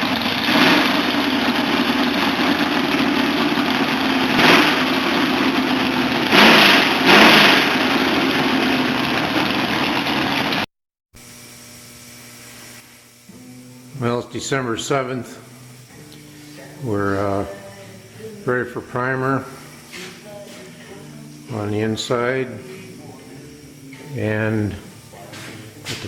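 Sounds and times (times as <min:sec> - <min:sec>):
engine running: 0:00.0 - 0:10.7.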